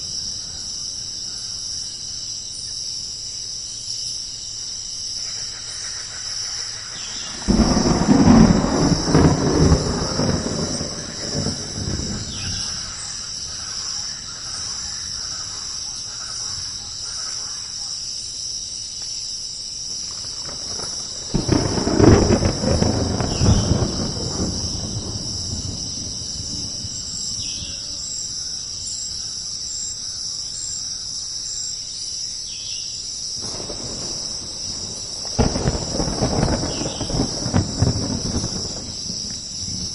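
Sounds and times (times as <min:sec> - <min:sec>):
insects chirring: 0:00.0 - 0:39.9
thunder rumbling: 0:07.0 - 0:15.1, 0:20.0 - 0:28.1, 0:33.4 - 0:39.9.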